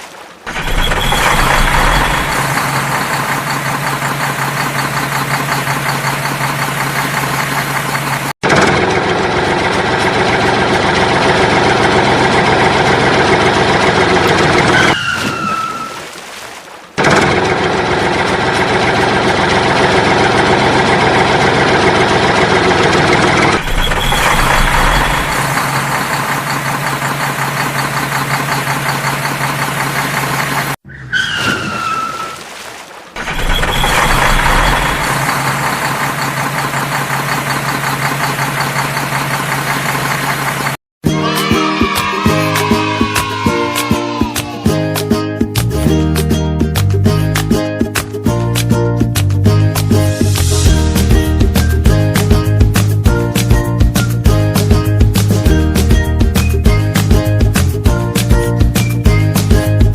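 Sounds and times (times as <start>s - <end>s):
short falling squeal: 0.5s - 6.6s, 14.7s - 16.1s, 30.9s - 32.5s, 33.2s - 35.6s
vehicle engine running: 0.5s - 15.0s, 17.0s - 30.8s, 33.2s - 40.8s, 49.8s - 59.9s.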